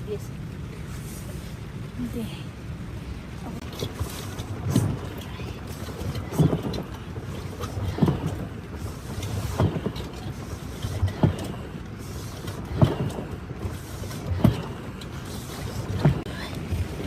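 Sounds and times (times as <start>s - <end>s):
dull thuds: 3.6s - 17.0s.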